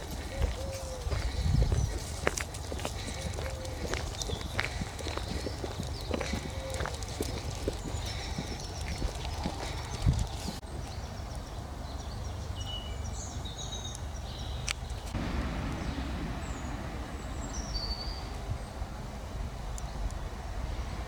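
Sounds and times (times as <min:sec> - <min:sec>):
steady low rumble: 0:00.0 - 0:10.6, 0:15.1 - 0:21.0
wild birds singing: 0:00.0 - 0:21.0.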